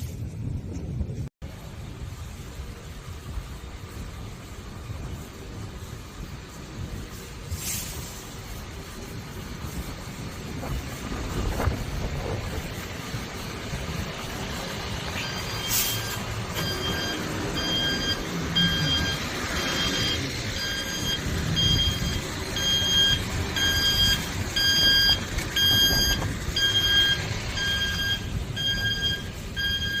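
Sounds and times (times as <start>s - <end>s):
short high electronic beeps: 15.2s - 30.0s.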